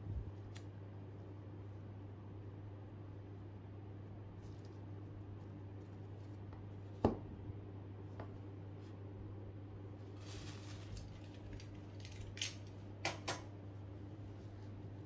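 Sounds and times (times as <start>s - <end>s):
low steady hum: 0.0s - 15.0s
cable rustle: 10.1s - 12.6s.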